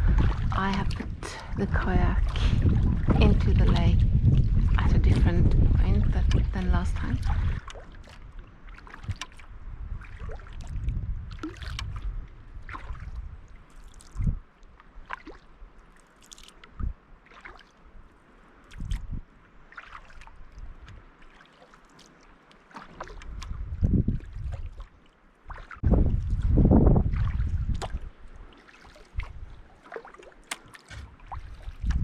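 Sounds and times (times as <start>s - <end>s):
dull low thumps: 0.0s - 7.7s, 23.3s - 24.7s, 25.8s - 28.2s
paddle splashing in water: 0.0s - 32.0s
water dripping off paddle: 6.2s - 19.1s, 19.7s - 26.4s, 27.1s - 32.0s.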